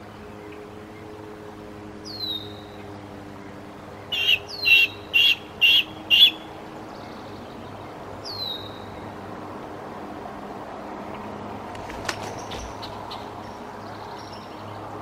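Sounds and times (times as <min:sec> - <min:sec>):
loud sharp bird notes: 0:04.1 - 0:06.5.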